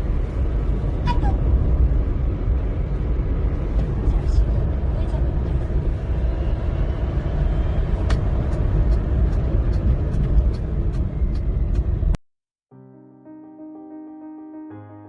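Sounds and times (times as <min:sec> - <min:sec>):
car driving rumble: 0:00.0 - 0:12.2
road and wind noise: 0:00.0 - 0:12.2.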